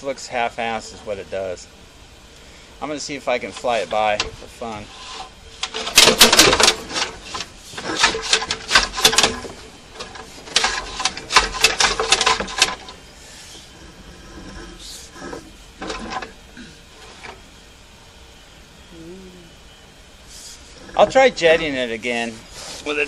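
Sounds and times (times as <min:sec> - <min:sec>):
scattered knocks: 0:05.6 - 0:12.9
cable clicking and rattling: 0:05.6 - 0:13.0.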